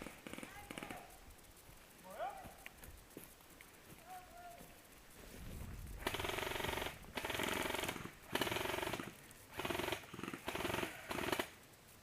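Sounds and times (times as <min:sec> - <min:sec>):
airsoft rifle full-auto bursts: 0:06.0 - 0:11.6.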